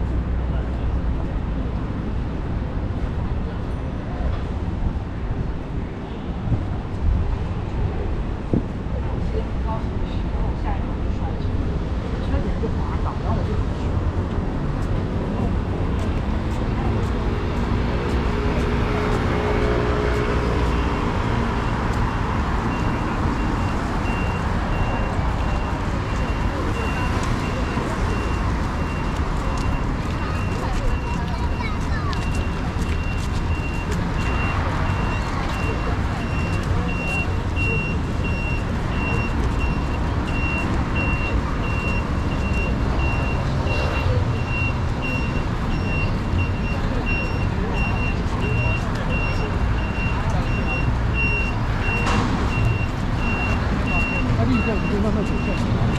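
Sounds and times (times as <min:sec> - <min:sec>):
street traffic rumble: 0:00.0 - 0:55.9
short high beeps: 0:32.2 - 0:55.7.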